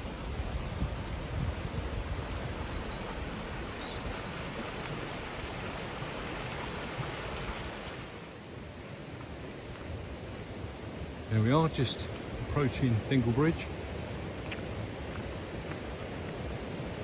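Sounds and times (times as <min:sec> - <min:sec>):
river water flowing: 0:00.0 - 0:17.0.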